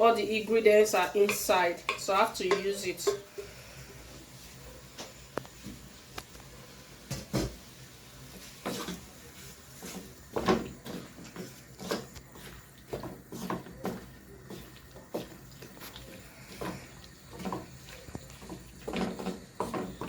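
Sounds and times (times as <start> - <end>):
cookware clattering: 1.3 - 3.4.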